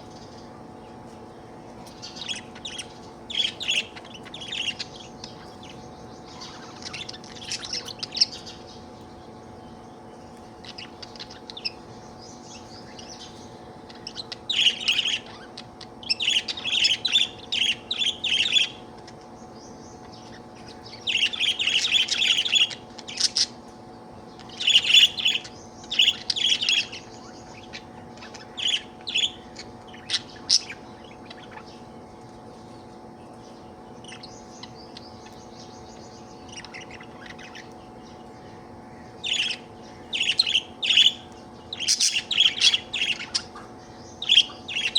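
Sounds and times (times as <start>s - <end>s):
steady low hum: 0.0s - 44.9s
budgerigar chirping and warbling: 2.0s - 8.7s, 12.6s - 19.2s, 20.0s - 23.6s, 24.4s - 31.8s, 34.0s - 38.2s, 39.0s - 44.9s.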